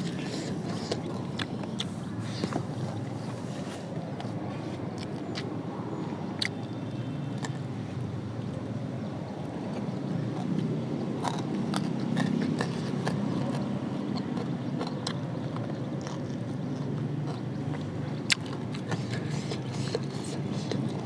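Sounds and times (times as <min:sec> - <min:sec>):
person chewing food: 0:00.0 - 0:05.6, 0:06.4 - 0:06.7, 0:07.4 - 0:07.7, 0:09.7 - 0:21.0
mouth clicks and smacks: 0:06.4 - 0:06.7, 0:09.7 - 0:21.0.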